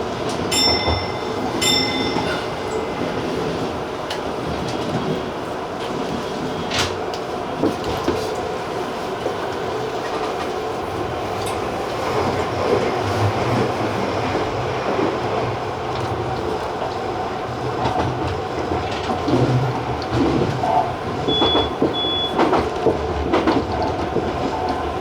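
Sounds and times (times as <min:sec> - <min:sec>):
electric train running: 0:00.2 - 0:05.4
train wheels clicking over rails: 0:11.2 - 0:25.0.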